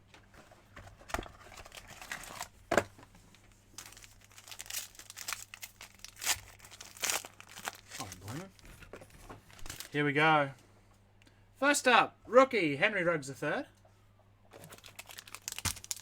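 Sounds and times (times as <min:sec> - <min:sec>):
plastic wrapping crinkling and tearing: 0:01.2 - 0:02.6, 0:03.8 - 0:08.6, 0:09.5 - 0:10.0, 0:14.6 - 0:16.0.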